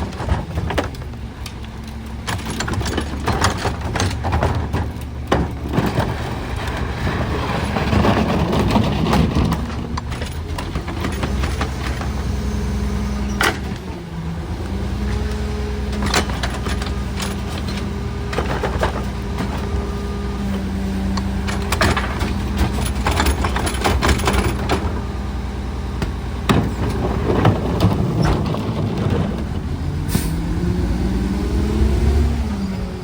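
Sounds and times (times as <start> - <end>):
metal clanks and knocks: 0.0 - 12.2, 13.3 - 14.0, 15.9 - 20.2, 21.1 - 25.2, 26.0 - 29.8
garbage truck engine running: 0.0 - 33.0.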